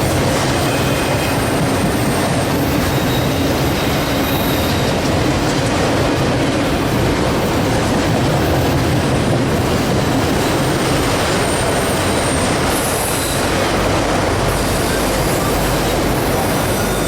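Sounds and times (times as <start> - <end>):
high wheel squeal: 0.0 - 5.1, 10.8 - 17.0
freight train wheels rumbling: 0.0 - 17.0.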